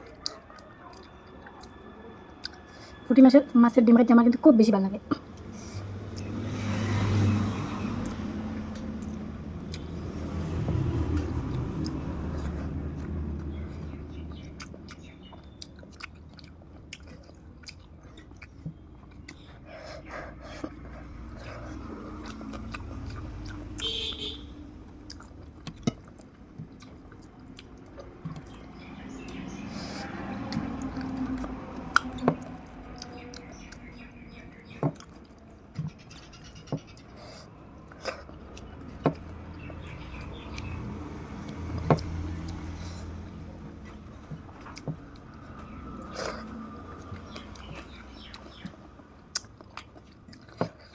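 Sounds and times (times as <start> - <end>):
person chewing food: 0.0 - 3.0, 5.1 - 50.9
wet lip and tongue clicks: 11.1 - 23.9, 43.8 - 50.9
mouth clicks and smacks: 46.0 - 50.9.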